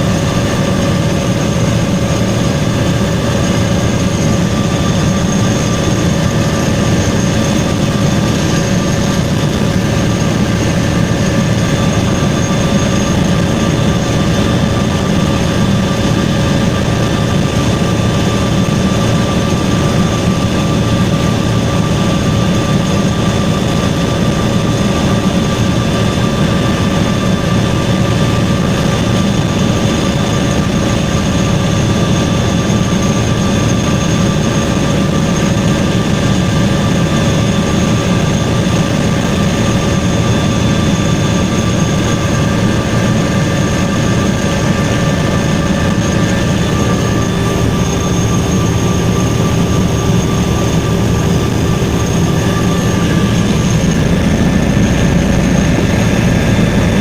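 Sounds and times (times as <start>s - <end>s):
helicopter rotor and engine drone: 0.0s - 57.0s
high-pitched whines: 26.0s - 57.0s.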